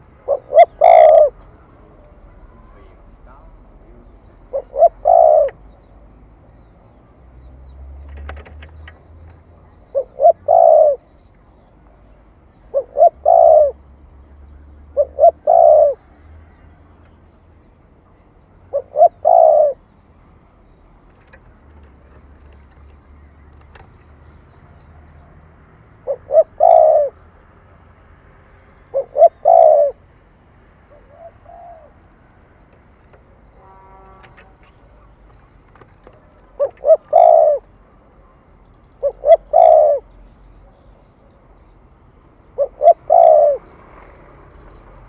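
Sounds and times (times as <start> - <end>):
dove cooing: 0.0 - 6.4, 8.2 - 11.4, 12.6 - 13.9, 14.6 - 16.9, 18.2 - 20.0, 20.6 - 27.3, 28.9 - 30.0, 30.9 - 32.2, 33.6 - 37.8, 38.9 - 41.7, 42.5 - 44.7.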